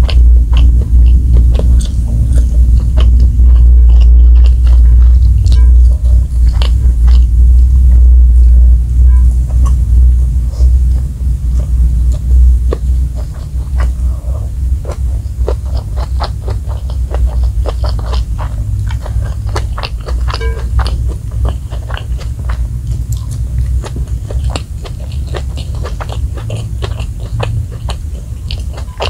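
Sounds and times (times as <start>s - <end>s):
crunchy chewing clicks: 0.0s - 29.0s
steady low hum: 0.0s - 29.0s
wet chewing smacks: 11.6s - 29.0s.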